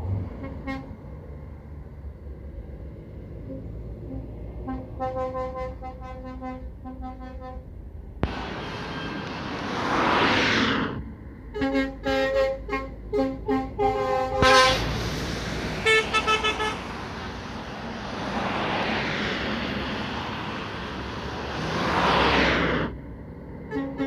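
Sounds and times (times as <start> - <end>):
truck horn blasts: 0.0 - 1.1, 3.4 - 9.4, 11.5 - 18.2, 23.7 - 24.0
passing lorries rushing: 0.0 - 24.0
short high horn toots: 11.6 - 17.6.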